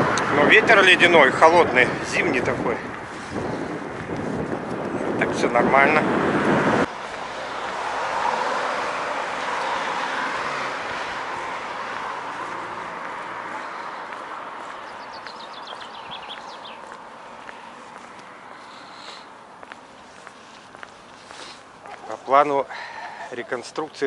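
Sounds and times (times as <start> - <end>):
small bird chirping: 14.8 - 17.0
vehicle tyre hiss: 18.4 - 19.4, 20.0 - 21.8.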